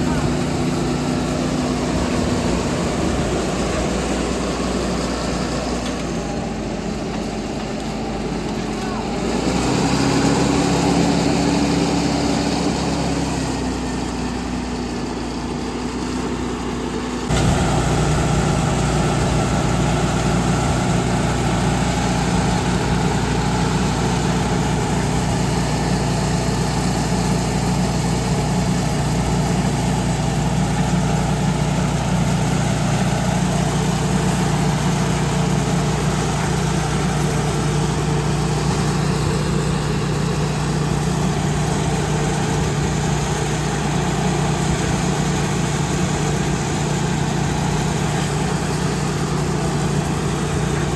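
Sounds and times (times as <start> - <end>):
deep steady hum: 0.0 - 5.6, 17.2 - 32.2
heavy machinery engine running: 0.0 - 50.9.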